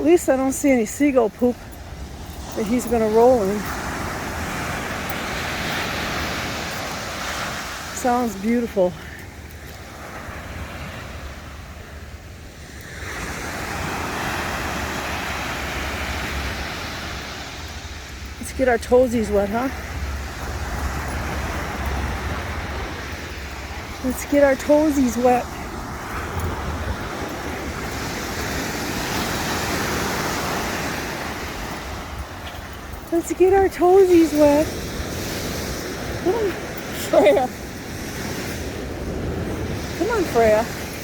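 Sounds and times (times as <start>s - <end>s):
waves washing on beach: 0.0s - 41.0s
wind rumbling on microphone: 0.0s - 41.0s.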